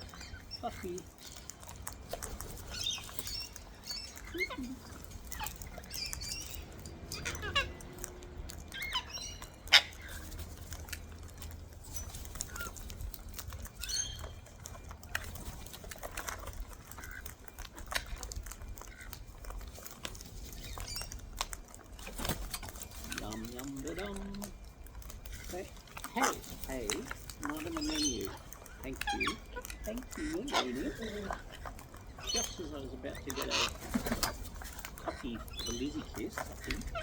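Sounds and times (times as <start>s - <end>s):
cockatoo high calls: 0.0s - 11.0s, 27.3s - 37.0s
birds cracking seed: 0.0s - 37.0s.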